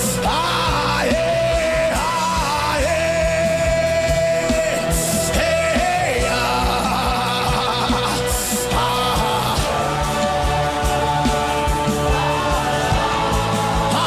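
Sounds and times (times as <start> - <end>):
drums: 0.0 - 14.0
steady low bass: 0.0 - 14.0.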